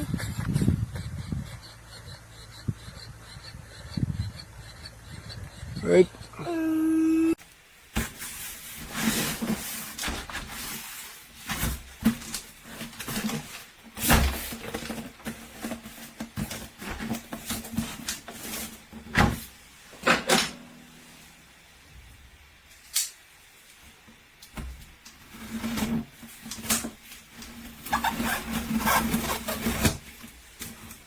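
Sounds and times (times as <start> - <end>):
toy truck electric motor hum: 0.0 - 6.4.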